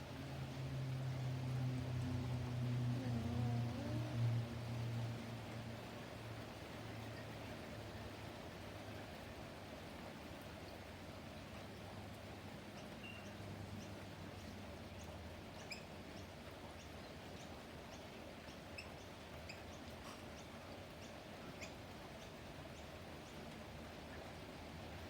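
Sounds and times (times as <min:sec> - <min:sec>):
steady low hum: 0:00.0 - 0:09.2
small birds chirping: 0:12.7 - 0:23.5.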